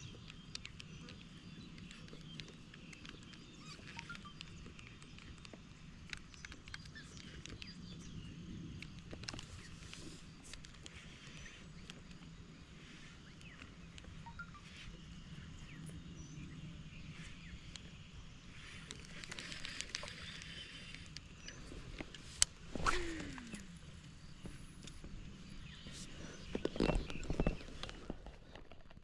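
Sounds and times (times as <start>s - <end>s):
small clicks and taps: 0.0s - 8.1s.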